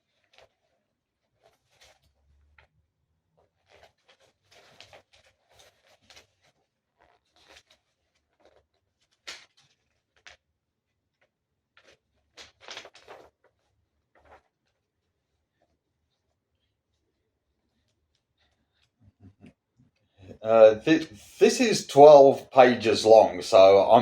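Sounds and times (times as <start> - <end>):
paper pages rustling: 1.4 - 2.7, 3.4 - 10.5, 11.1 - 16.7.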